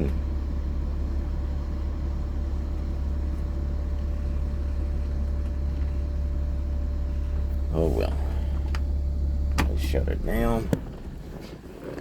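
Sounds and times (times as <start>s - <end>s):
faint higher hum: 0.0s - 11.6s
diesel generator droning: 0.0s - 12.0s.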